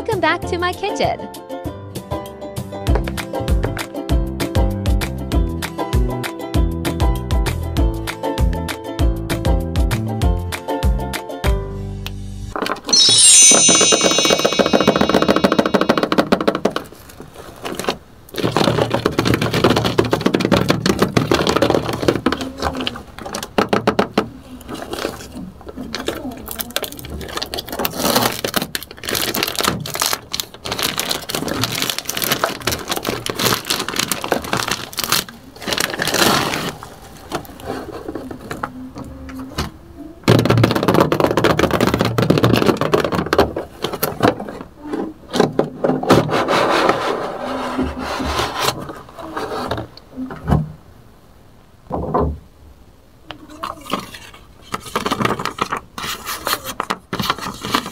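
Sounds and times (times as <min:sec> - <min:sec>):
plastic wrap crinkling: 0:15.8 - 0:23.8, 0:24.4 - 0:38.7.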